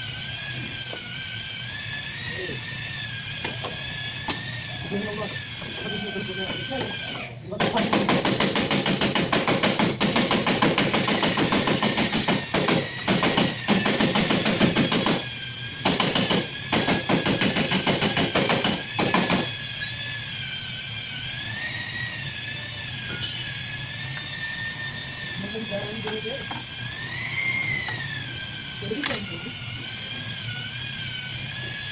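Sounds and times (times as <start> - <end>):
rapid mechanical hammering: 6.8 - 19.7.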